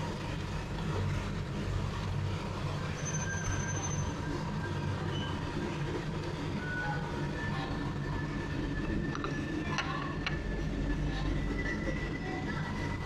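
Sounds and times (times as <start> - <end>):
faint high tones from running gear: 2.9 - 5.4.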